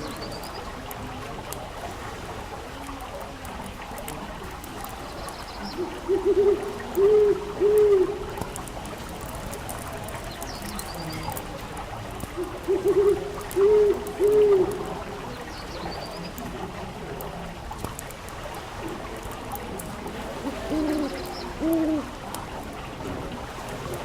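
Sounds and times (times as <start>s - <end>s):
owl hooting: 5.8s - 8.2s, 20.4s - 22.2s.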